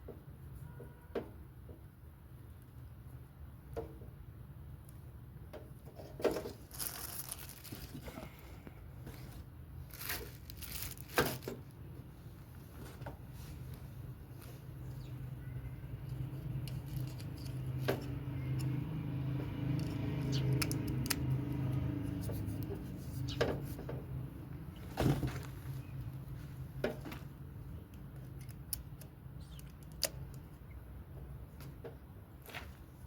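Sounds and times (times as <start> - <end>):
objects clicking and knocking: 16.1 - 18.8.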